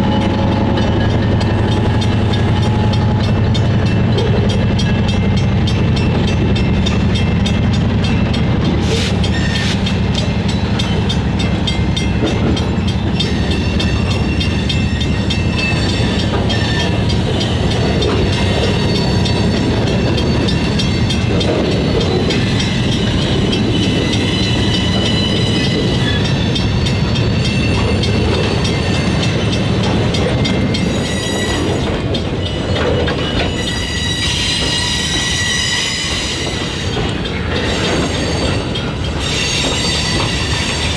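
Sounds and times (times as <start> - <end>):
freight train rumbling: 0.0 - 40.9
steel wheels squealing: 8.8 - 11.8, 13.0 - 40.9.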